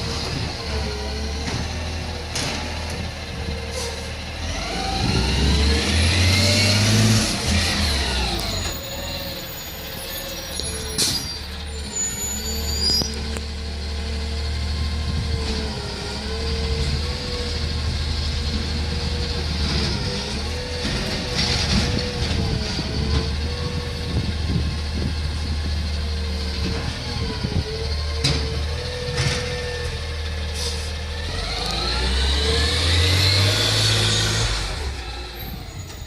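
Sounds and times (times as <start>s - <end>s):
truck diesel engine revving: 0.0s - 10.9s, 11.6s - 35.8s
air brake hiss: 30.5s - 31.0s.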